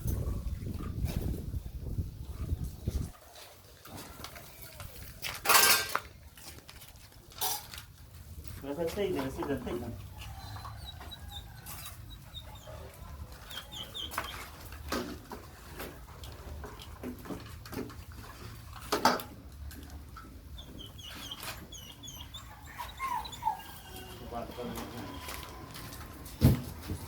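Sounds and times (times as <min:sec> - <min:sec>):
puppies squeaking: 0:09.2 - 0:14.9, 0:20.2 - 0:25.7.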